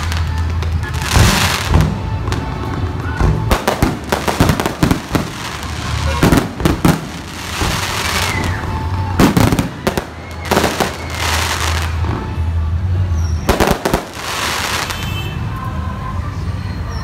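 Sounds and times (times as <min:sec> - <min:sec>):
fireworks crackling: 0:00.0 - 0:12.6, 0:13.4 - 0:15.3
fireworks shells bursting: 0:03.3 - 0:11.7.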